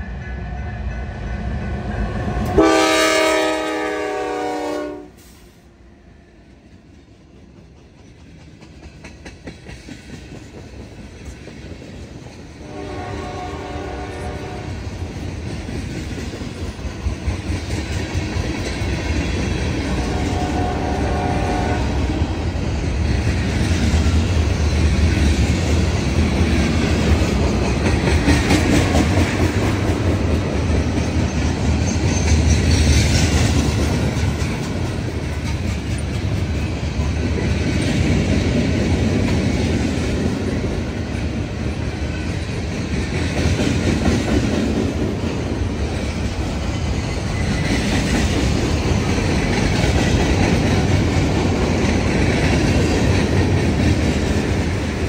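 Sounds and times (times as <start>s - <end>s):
locomotive air horn blasts: 2.5s - 5.5s, 12.6s - 14.8s, 20.0s - 22.1s.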